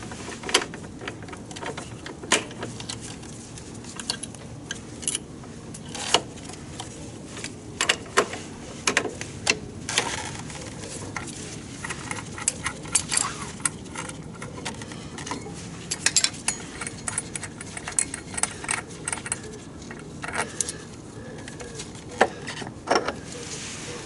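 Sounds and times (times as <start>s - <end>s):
metal tools clinking: 11.8s - 20.9s.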